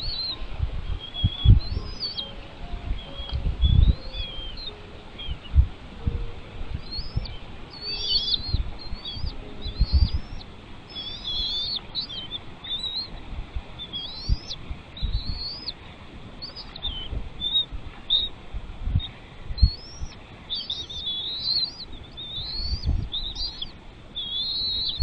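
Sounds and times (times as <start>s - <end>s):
bird chirping: 0.0s - 25.0s
low thumps and rumble: 2.8s - 10.5s.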